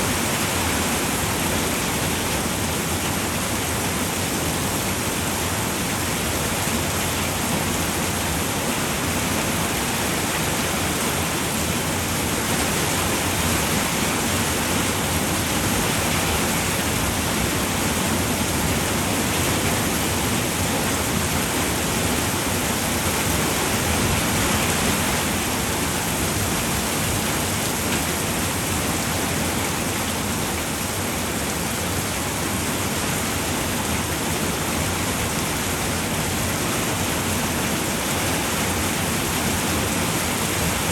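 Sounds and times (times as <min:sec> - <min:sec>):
rain falling on a roof: 0:00.0 - 0:40.9.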